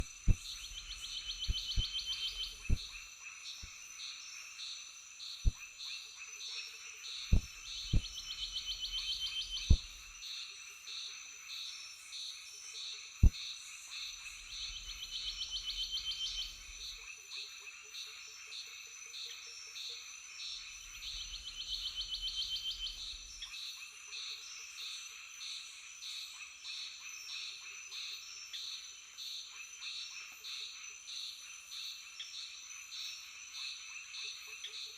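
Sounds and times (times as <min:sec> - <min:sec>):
insects chirping: 0:00.0 - 0:12.6, 0:13.3 - 0:26.2
frogs chorus: 0:00.0 - 0:34.9.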